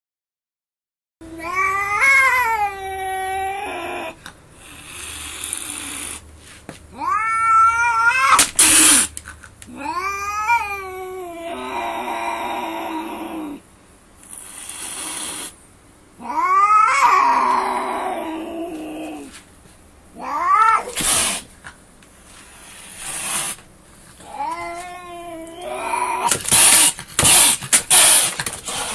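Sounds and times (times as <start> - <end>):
cat yowling: 1.2 - 4.2, 6.9 - 9.1, 9.7 - 13.6, 16.2 - 19.3, 20.2 - 21.4, 24.2 - 27.5
breathy hissing: 8.4 - 9.1, 14.2 - 15.6, 20.8 - 21.6, 22.3 - 23.6.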